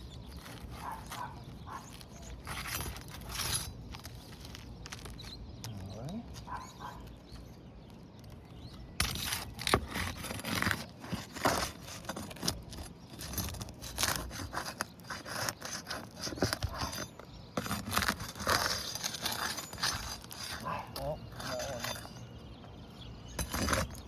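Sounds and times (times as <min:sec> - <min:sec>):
hand tool scraping roof shingles: 0:00.3 - 0:05.3, 0:09.0 - 0:22.2, 0:23.4 - 0:24.0.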